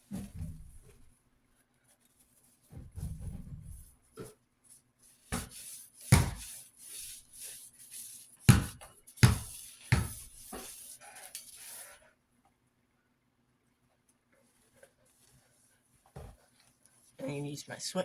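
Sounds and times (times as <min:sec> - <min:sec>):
sharp knocks on metal fan guard: 0:06.2 - 0:06.4, 0:08.5 - 0:10.2.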